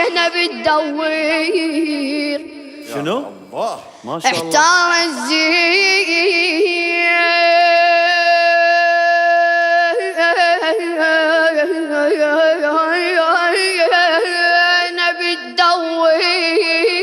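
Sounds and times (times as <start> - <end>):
boy chanting solo: 4.2 - 5.5.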